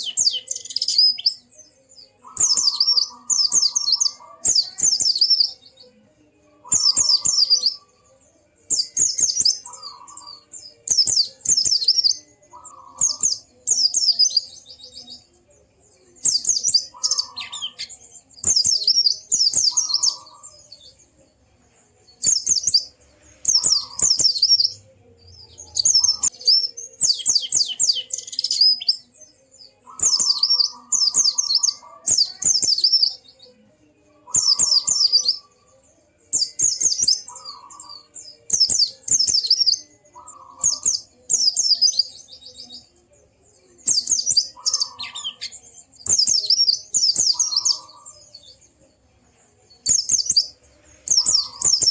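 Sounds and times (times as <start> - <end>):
bird twittering: 0.0 - 5.7, 6.6 - 7.8, 8.7 - 14.9, 16.2 - 20.9, 22.2 - 24.8, 25.4 - 29.1, 29.8 - 33.2, 34.3 - 35.4, 43.9 - 48.5, 49.9 - 51.9.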